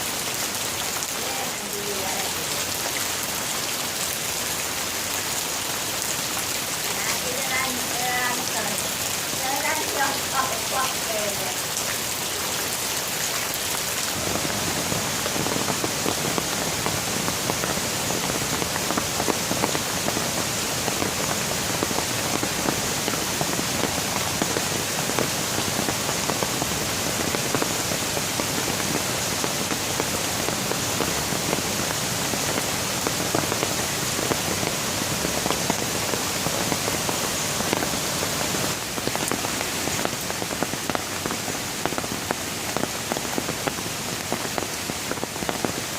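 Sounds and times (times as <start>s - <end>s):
steady rain: 0.0s - 45.9s.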